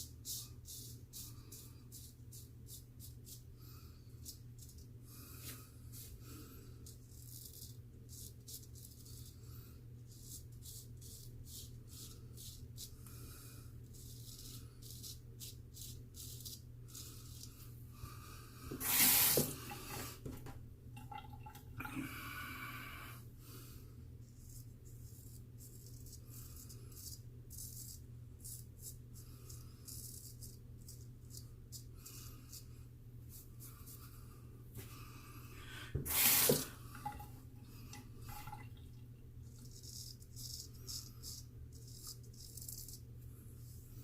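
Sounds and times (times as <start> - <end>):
water rushing from sink tap: 18.8 - 20.1, 36.0 - 37.2.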